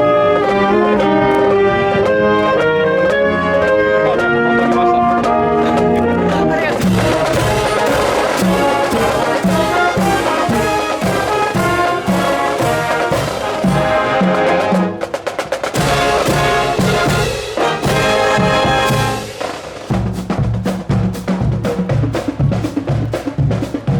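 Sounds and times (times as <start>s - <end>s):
brass band melody: 0.0s - 23.9s
marching drums: 0.0s - 23.9s.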